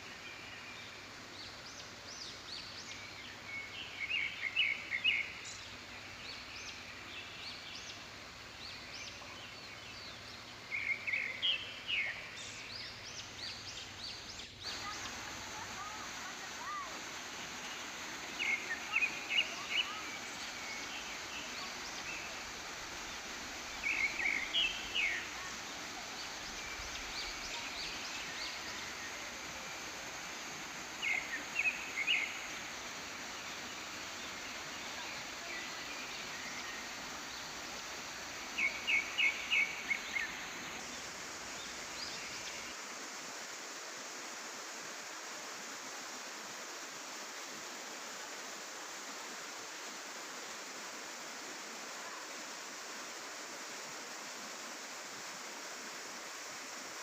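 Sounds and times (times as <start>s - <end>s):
waterfall rushing: 14.6s - 57.0s.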